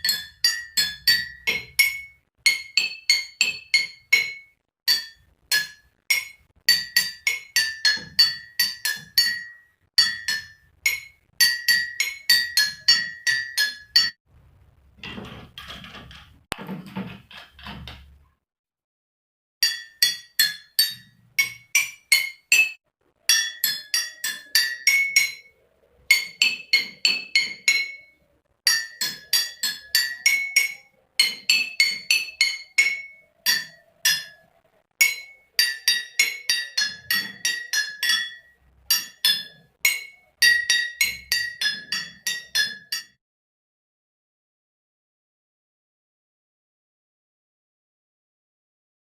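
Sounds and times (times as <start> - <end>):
glasses struck playing a melody: 0.0 - 14.2, 19.6 - 25.5, 26.1 - 43.1.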